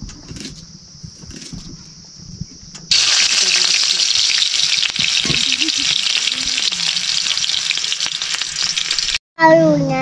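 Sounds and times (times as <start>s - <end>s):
food frying in hot oil: 2.9s - 9.2s.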